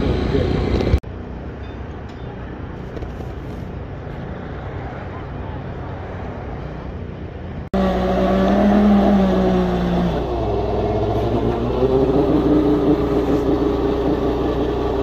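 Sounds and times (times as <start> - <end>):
vehicle engine running: 7.8 - 15.0.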